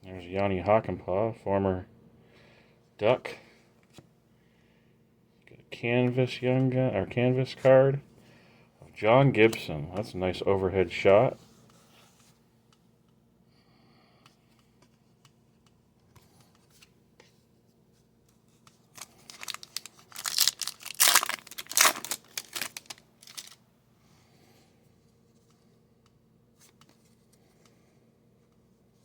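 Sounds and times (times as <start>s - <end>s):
faint card handling: 14.2s - 23.6s, 25.0s - 29.0s
foil wrapper tearing and crinkling: 18.9s - 23.6s.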